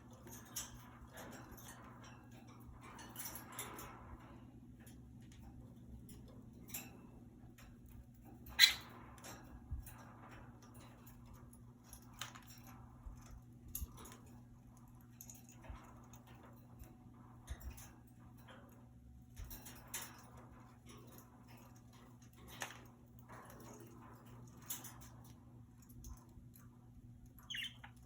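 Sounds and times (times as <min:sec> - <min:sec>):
birds clicking and scratching in cage: 0:00.0 - 0:28.0.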